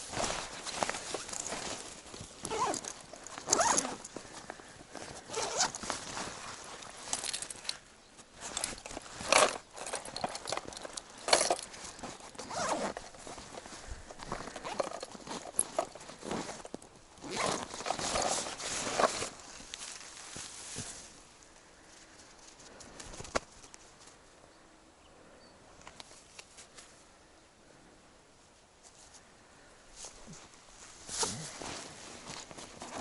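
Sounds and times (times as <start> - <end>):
clothing swishing and rustling: 8.4 - 21.2, 30.0 - 33.0
footsteps through grass: 18.5 - 21.3.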